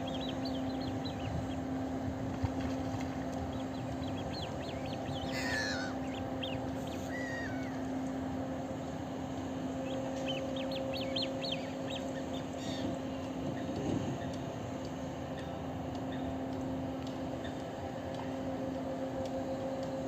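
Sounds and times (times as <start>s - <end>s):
steady low hum: 0.0s - 20.0s
birds chirping: 3.5s - 7.9s
harsh bird calls: 4.4s - 7.8s.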